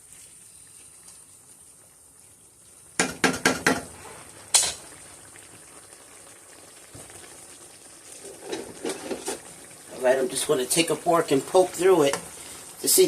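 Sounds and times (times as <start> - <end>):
beef simmering and bubbling: 0.0 - 13.0
metal utensil clanking on pot: 8.3 - 9.5.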